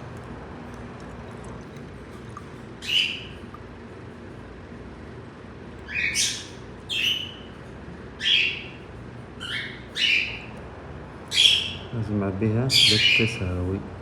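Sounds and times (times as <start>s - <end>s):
faint steady hum: 0.0s - 14.0s
bird squawking: 2.8s - 3.4s, 5.9s - 7.5s, 8.2s - 8.8s, 9.4s - 10.5s, 11.3s - 11.9s, 12.7s - 13.4s.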